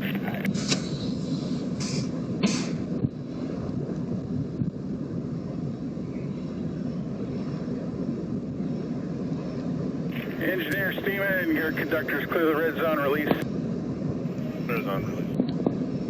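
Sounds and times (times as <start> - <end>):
diesel locomotive idling: 10.1 - 13.4.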